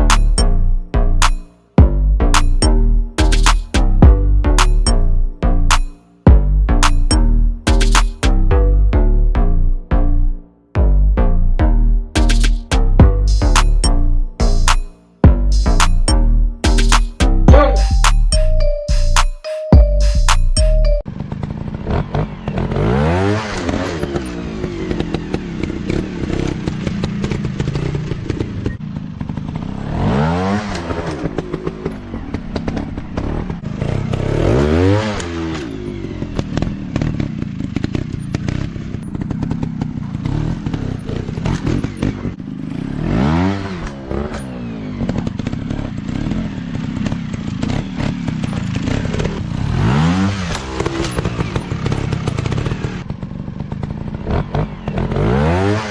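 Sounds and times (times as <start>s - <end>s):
dirt bike engines revving: 20.8s - 55.9s.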